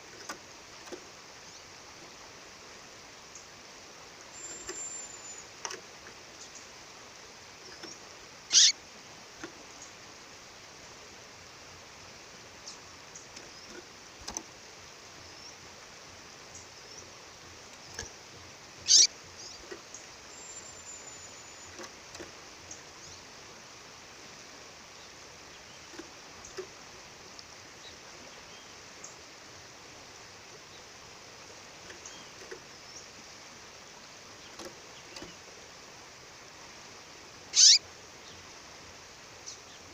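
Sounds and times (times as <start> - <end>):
songbird chirping: 0.0 - 8.8, 9.4 - 23.5, 24.2 - 35.8, 36.8 - 39.9.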